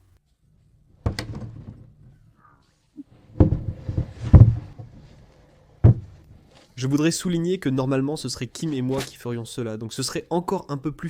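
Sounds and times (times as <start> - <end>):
bunk bed knocks and thumps: 1.0 - 2.0, 3.2 - 5.1, 5.8 - 6.3.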